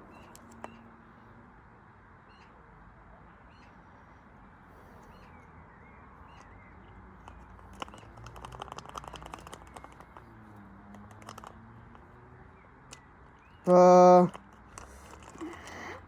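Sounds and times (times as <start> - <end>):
light rattling clicks: 7.2 - 12.2, 14.3 - 16.0.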